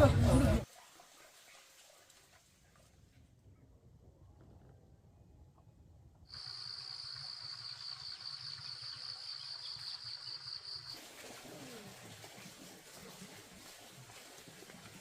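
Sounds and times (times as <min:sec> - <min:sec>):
insects buzzing: 0:06.3 - 0:11.0.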